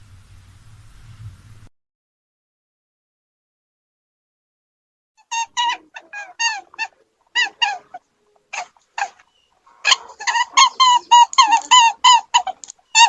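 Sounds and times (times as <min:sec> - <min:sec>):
animal high-pitched calls: 0:05.2 - 0:13.0.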